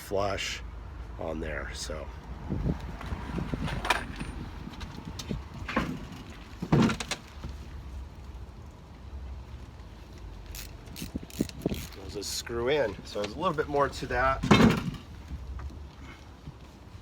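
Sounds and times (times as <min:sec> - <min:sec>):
knocks and scrapes on window: 0:05.3 - 0:07.6.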